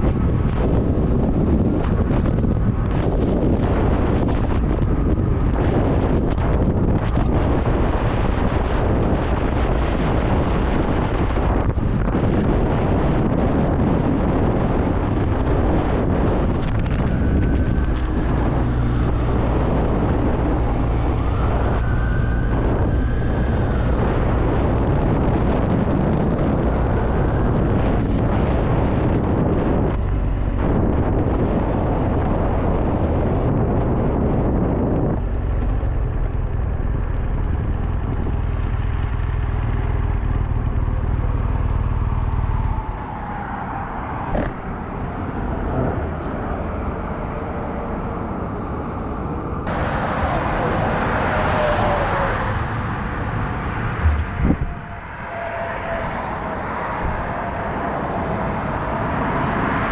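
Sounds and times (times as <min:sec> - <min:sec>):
wind noise on microphone: 0:00.0 - 0:59.9
motorcycle engine running: 0:35.2 - 0:42.6.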